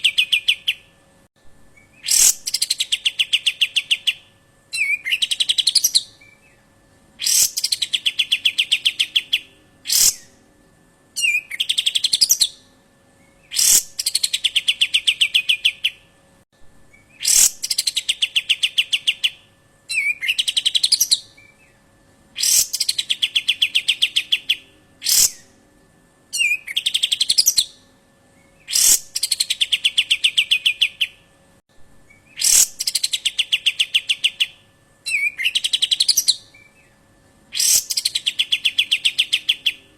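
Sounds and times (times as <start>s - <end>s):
bird call with falling trill: 1.8s - 6.6s, 7.2s - 10.2s, 13.4s - 16.0s, 16.9s - 21.7s, 22.4s - 25.4s, 28.6s - 31.2s, 32.1s - 36.8s, 37.5s - 39.8s.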